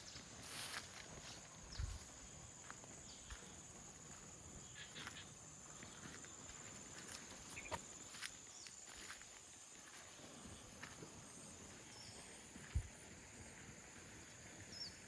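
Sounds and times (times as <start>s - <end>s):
footsteps and scuffs: 0.0s - 11.2s.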